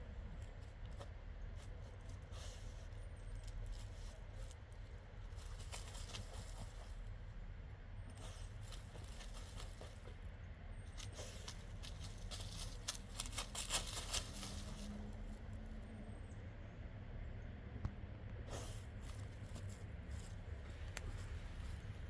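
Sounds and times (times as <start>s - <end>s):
dog pawing in soft dirt: 0.2s - 7.3s, 8.1s - 15.5s.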